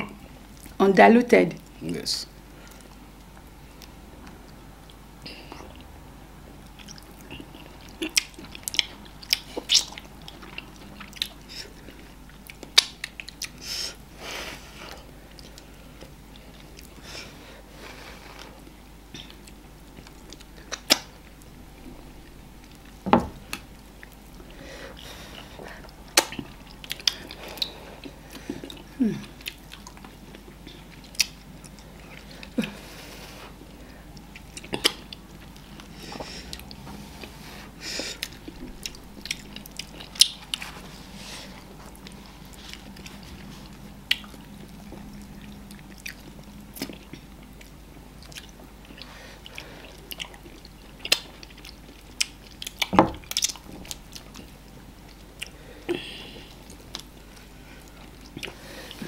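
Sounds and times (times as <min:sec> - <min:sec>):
lip smacks and mouth clicks: 0:06.6 - 0:13.6, 0:19.2 - 0:21.5, 0:25.8 - 0:32.3, 0:34.2 - 0:35.9, 0:38.2 - 0:40.7, 0:44.0 - 0:54.5
wet chewing: 0:06.6 - 0:13.6, 0:22.2 - 0:32.8, 0:38.2 - 0:40.8, 0:41.4 - 0:55.6.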